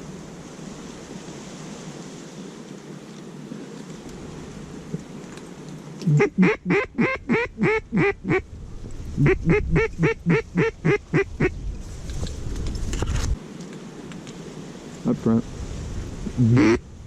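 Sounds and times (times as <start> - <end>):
wind rumble on microphone: 6.0 - 13.4, 14.2 - 17.0
duck quacking: 6.1 - 8.4, 9.2 - 11.5, 16.3 - 16.8.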